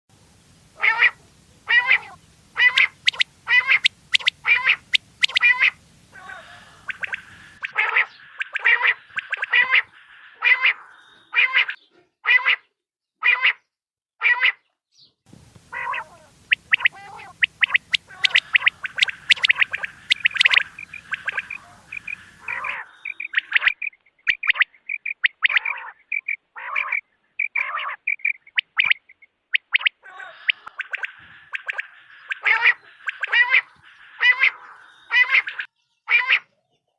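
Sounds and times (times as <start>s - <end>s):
low hum: 0.1s - 10.2s, 15.3s - 23.5s
quail calls: 0.8s - 13.6s, 15.6s - 36.5s.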